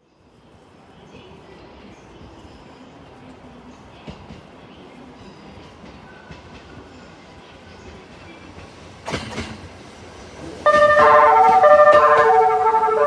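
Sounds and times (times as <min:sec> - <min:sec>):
electric train rumble: 0:07.4 - 0:13.0
train clatter: 0:07.7 - 0:13.0
loud multi-note tone: 0:10.7 - 0:13.0.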